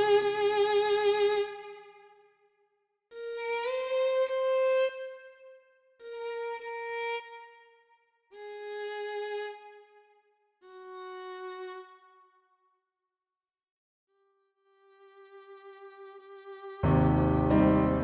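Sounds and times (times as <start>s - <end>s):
synthesized violin long notes: 14.9s - 18.0s.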